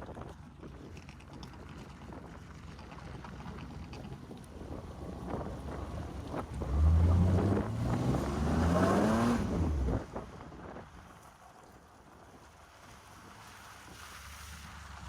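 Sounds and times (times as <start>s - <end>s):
car engine revving: 6.6s - 9.9s.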